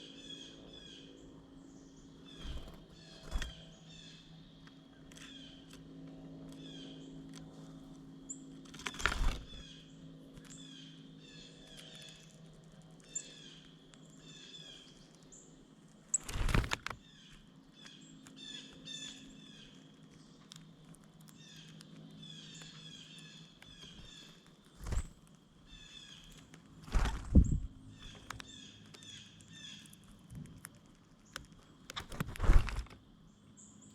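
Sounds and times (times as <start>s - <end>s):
faint low hum: 0.0s - 33.9s
small birds chirping: 0.0s - 33.9s
loud thuds or flutters: 16.2s - 17.0s, 26.8s - 27.7s, 32.0s - 33.0s.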